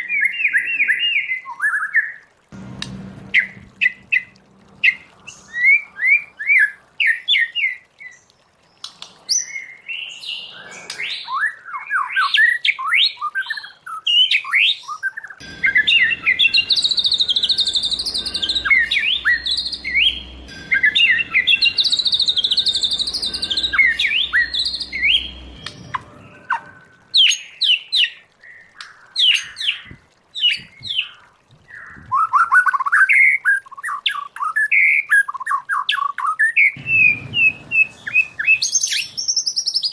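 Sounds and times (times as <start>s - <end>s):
low background rumble: 2.5s - 7.0s, 15.4s - 27.1s, 36.8s - 39.6s
bird singing whistled phrases: 9.3s - 27.7s, 31.7s - 39.9s.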